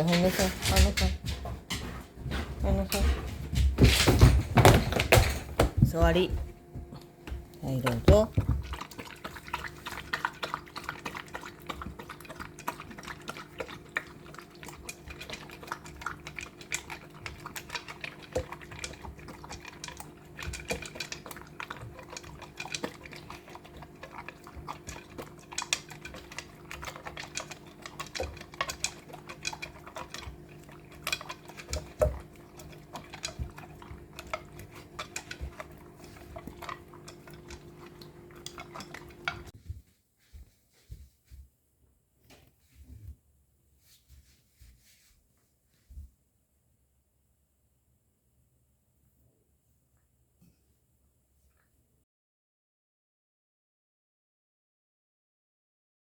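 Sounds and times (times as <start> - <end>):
dog crunching food: 0.0 - 39.5.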